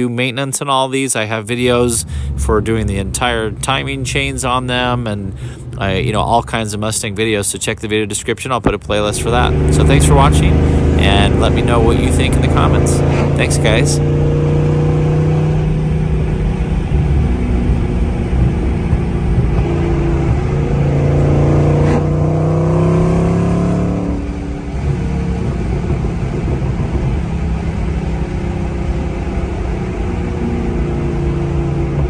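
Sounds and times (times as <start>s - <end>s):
car engine accelerating: 0.7s - 32.0s.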